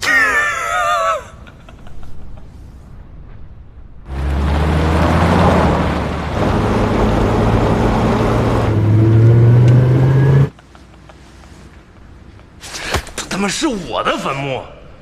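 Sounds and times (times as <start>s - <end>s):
vehicle engine revving: 4.1s - 10.5s.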